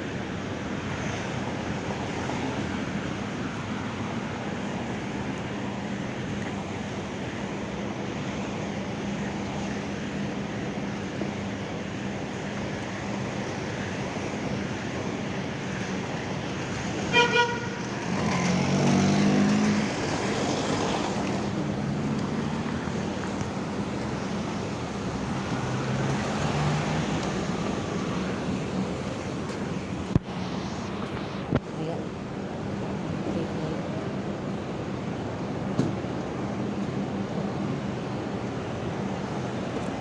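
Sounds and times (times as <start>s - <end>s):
city street traffic: 0.0s - 40.0s
heavy engine passing close: 1.0s - 35.4s
vehicle horn toots: 17.0s - 18.2s.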